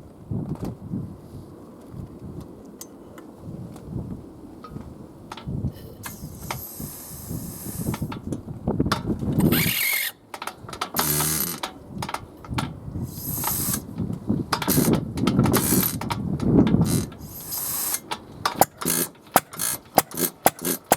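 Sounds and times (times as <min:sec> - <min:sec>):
small engine clattering: 0:04.8 - 0:20.9.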